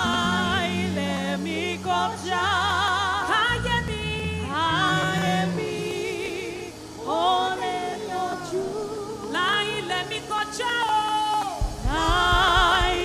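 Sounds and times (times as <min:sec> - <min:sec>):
keyboard and bass: 0:00.0 - 0:10.4
gospel singing with vibrato: 0:00.0 - 0:13.0.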